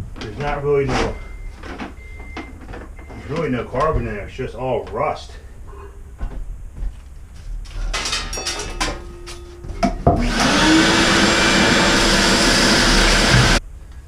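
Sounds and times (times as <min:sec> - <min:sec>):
shop vac clattering: 0:00.0 - 0:05.1, 0:07.5 - 0:13.6
shop vac motor whining: 0:07.6 - 0:13.6.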